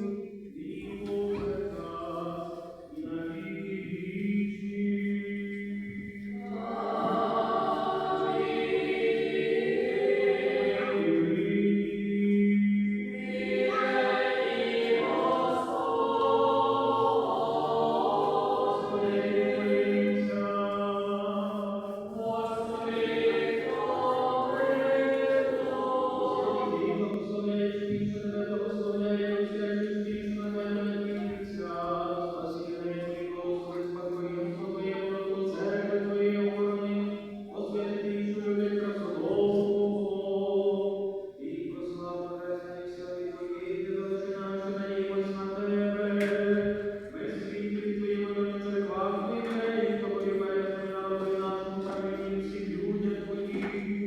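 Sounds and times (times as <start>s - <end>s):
choir singing a slow chant: 0.0s - 54.0s.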